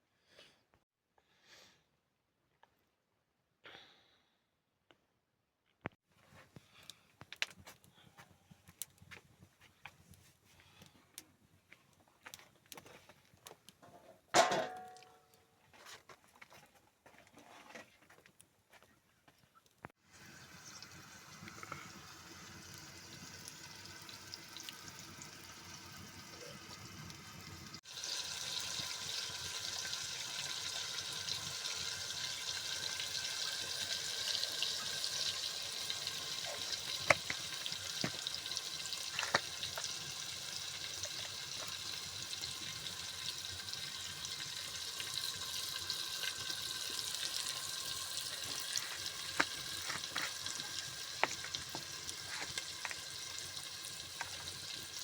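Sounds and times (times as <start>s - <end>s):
food sizzling in hot oil: 20.0s - 55.0s
oil popping: 20.2s - 26.5s, 27.7s - 55.0s.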